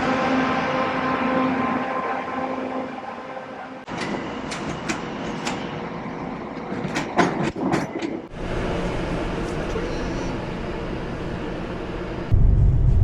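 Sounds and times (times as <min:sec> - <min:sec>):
train running: 0:00.0 - 0:12.4.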